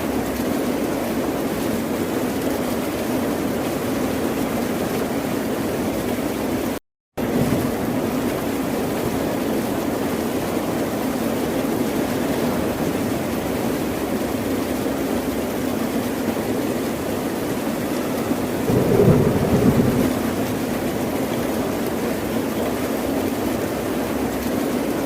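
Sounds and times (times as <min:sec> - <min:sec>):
ocean surf: 0:17.7 - 0:22.6.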